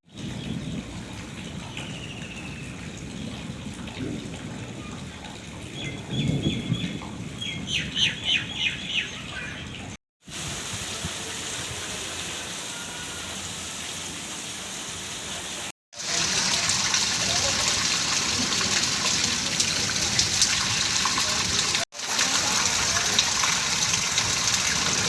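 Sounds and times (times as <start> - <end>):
running water: 8.8 - 25.0
heavy rain hissing: 10.3 - 25.0.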